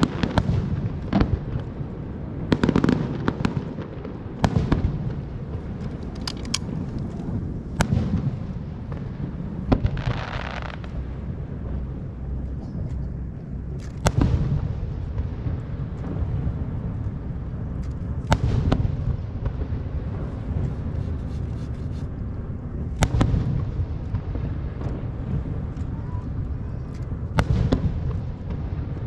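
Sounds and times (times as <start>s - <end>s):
fireworks booms: 0.0s - 29.0s
light firework cracks: 9.7s - 11.0s.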